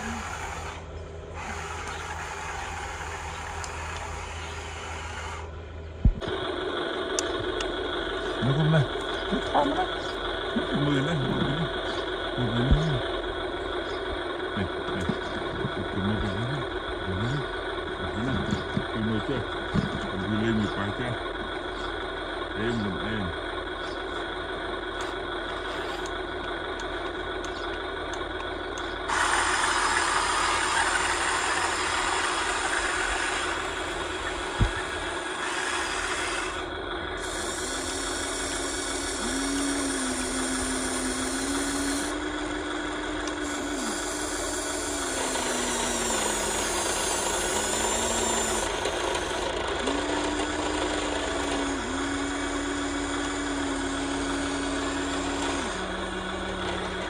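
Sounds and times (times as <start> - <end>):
motor whine rising and falling: 0.0 - 21.9, 22.6 - 57.0
model excavator motors humming: 0.0 - 57.0.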